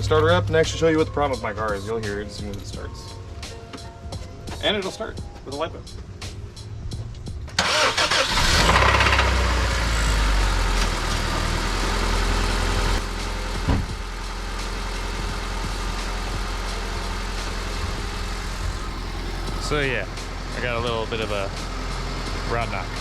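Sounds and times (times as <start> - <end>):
car engine cranking and idling: 0.0 - 4.6, 5.9 - 23.0
short thud: 13.7 - 14.0.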